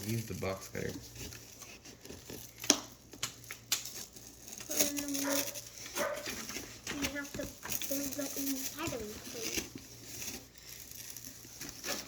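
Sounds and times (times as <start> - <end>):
paper and cardboard rustling: 0.0 - 12.0.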